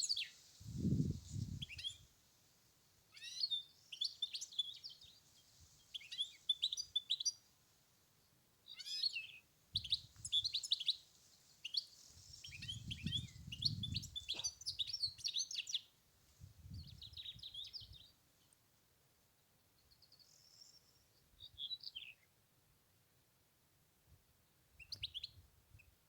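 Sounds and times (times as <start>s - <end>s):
goldfinch twittering song: 11.6s - 15.9s.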